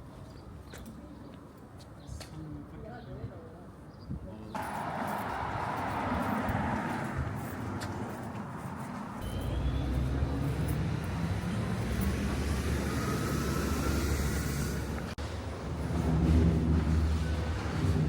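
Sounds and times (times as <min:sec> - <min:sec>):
vehicle engine rumble: 0:04.6 - 0:18.0.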